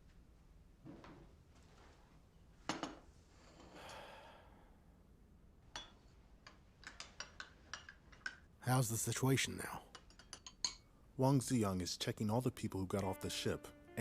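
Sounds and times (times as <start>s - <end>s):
soft rustle: 0.8s - 3.6s.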